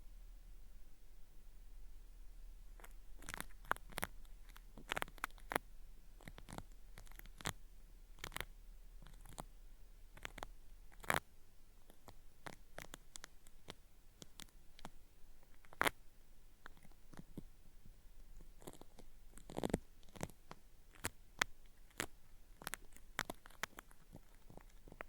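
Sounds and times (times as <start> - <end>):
cotton swab crackling in ear: 2.7 - 5.6, 6.2 - 9.5, 10.1 - 16.0, 16.6 - 17.5, 18.3 - 25.0.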